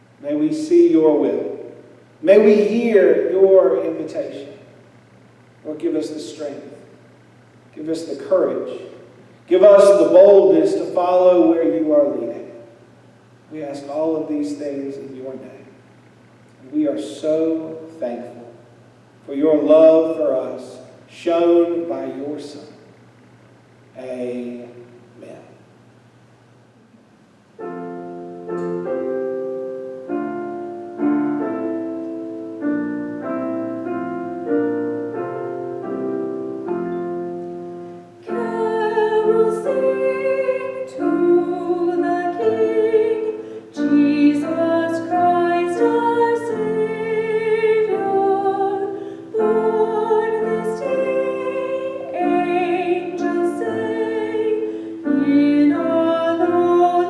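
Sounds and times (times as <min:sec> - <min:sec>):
piano chords: 0:00.0 - 0:04.6, 0:07.8 - 0:15.6, 0:27.4 - 0:57.0
woman singing classical style: 0:38.2 - 0:57.0.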